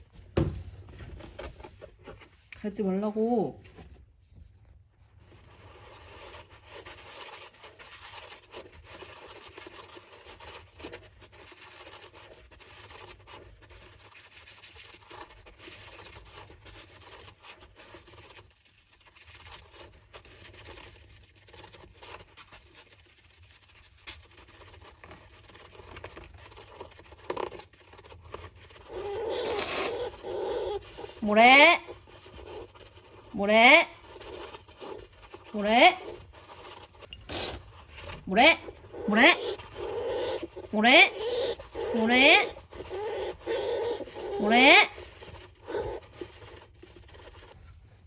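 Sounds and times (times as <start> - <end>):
hamster scratching in sand: 5.0 - 48.0.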